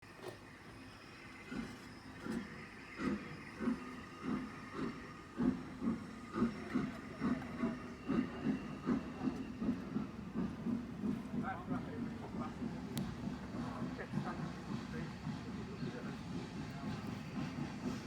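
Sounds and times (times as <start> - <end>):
steam locomotive chuffing: 0.1 - 18.0.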